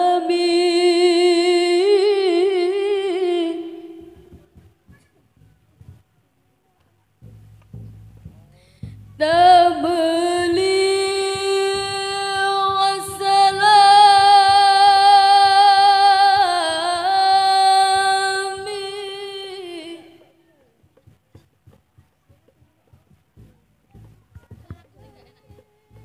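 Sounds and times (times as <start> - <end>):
woman singing over sound system: 0.0 - 4.3, 9.2 - 20.3
soft knocks: 4.2 - 6.2, 7.2 - 9.6, 20.6 - 26.0.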